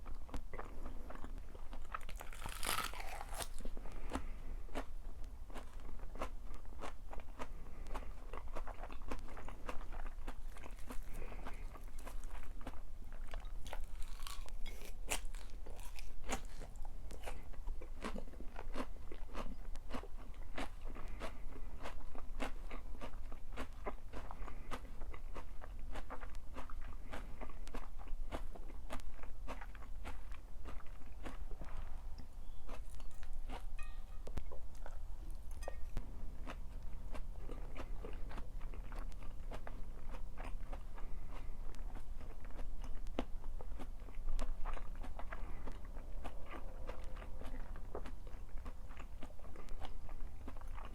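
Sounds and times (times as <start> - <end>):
person chewing crunchy food: 0.0 - 50.9
tableware clinking: 33.0 - 34.4, 35.5 - 36.0.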